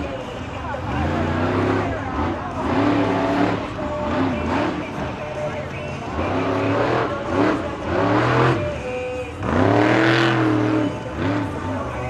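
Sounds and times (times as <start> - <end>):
truck engine revving hard: 0.0 - 12.0.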